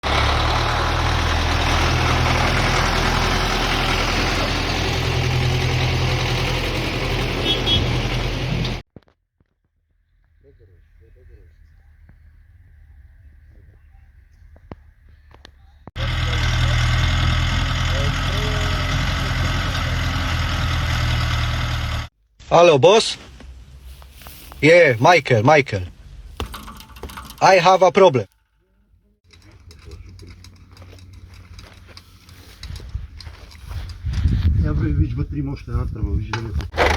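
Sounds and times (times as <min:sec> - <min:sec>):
vehicle engine running: 0:00.0 - 0:08.8, 0:12.1 - 0:22.1, 0:36.6 - 0:36.9.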